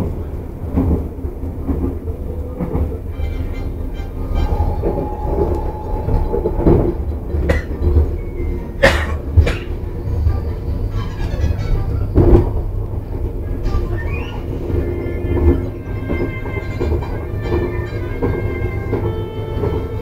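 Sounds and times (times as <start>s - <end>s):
train rumble inside carriage: 0.0s - 20.0s.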